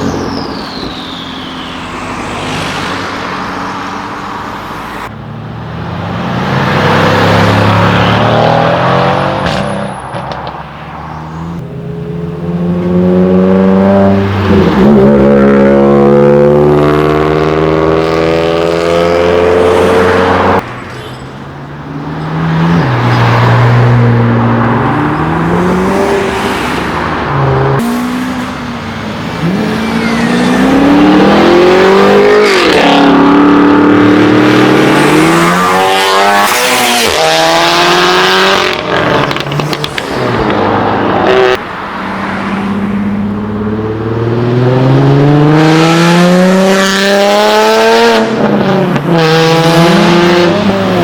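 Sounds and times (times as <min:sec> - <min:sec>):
cars accelerating with loud exhausts: 0:11.2 - 0:20.6, 0:21.8 - 0:51.0.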